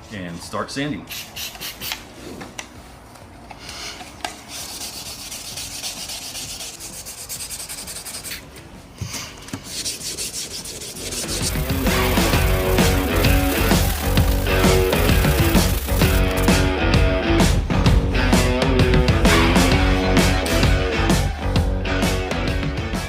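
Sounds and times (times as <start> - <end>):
sandpaper rubbing: 4.5 - 8.5, 9.6 - 16.5
music: 10.9 - 23.0.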